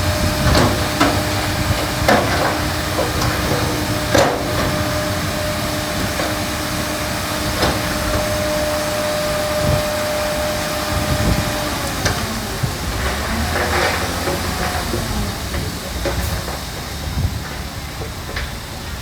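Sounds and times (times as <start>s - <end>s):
clanks and knocks: 0.0s - 8.9s
thin whine: 0.0s - 13.1s
heavy machinery running: 0.0s - 19.0s.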